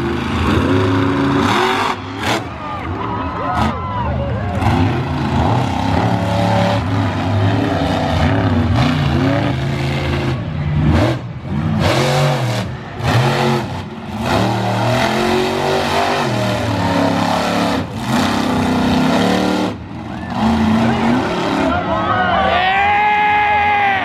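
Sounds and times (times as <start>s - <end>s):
engines revving hard: 0.0s - 22.1s.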